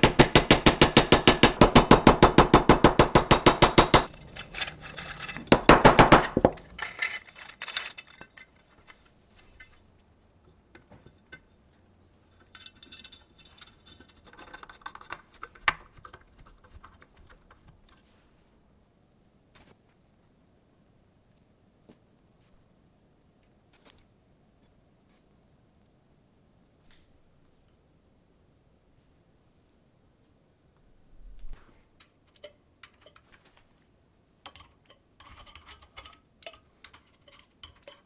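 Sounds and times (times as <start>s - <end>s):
irregular clatter: 0.0s - 9.8s.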